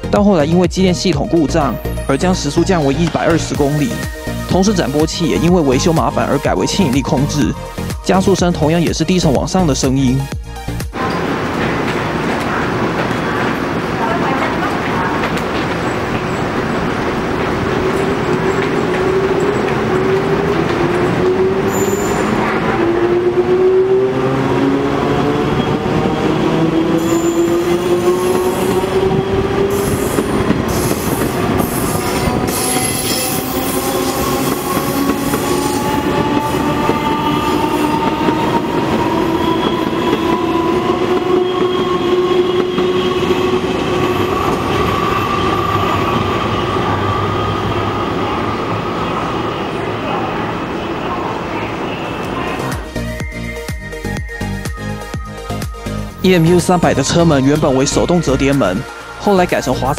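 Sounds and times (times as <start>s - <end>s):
train motor whine rising: 18.7s - 48.2s.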